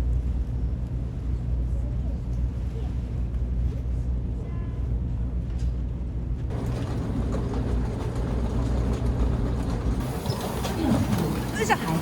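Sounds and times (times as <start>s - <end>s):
vehicle rumble: 6.4s - 12.0s.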